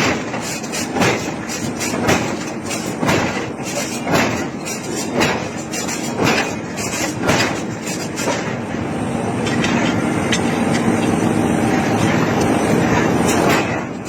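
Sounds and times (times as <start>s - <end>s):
heavy forging blows on iron: 0.0s - 8.9s, 11.6s - 14.0s
mechanical rumble: 0.0s - 14.0s.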